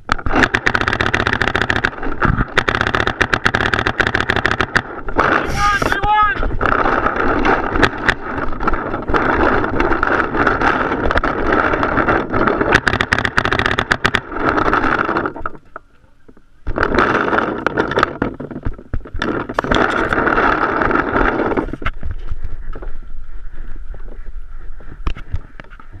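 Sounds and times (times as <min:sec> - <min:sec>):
paintball markers popping: 0:00.0 - 0:15.7
wind and movement noise: 0:00.0 - 0:26.0.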